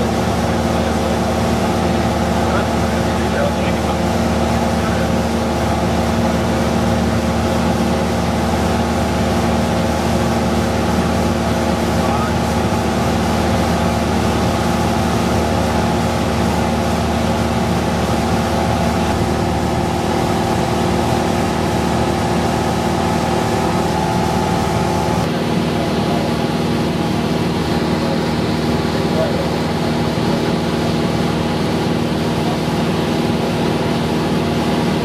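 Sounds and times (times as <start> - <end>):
propeller plane engine droning: 0.0 - 35.0.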